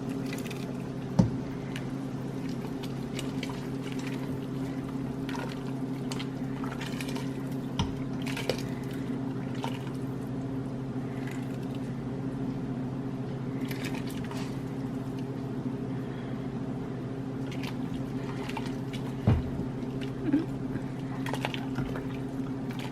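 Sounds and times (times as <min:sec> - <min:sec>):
pot boiling and bubbling: 0:00.0 - 0:12.1, 0:17.3 - 0:22.9
steady low hum: 0:00.0 - 0:22.9.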